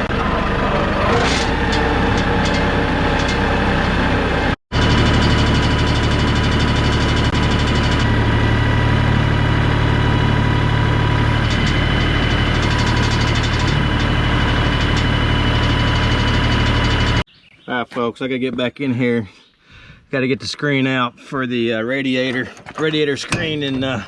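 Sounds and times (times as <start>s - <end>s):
tractor diesel engine running: 0.0s - 17.3s.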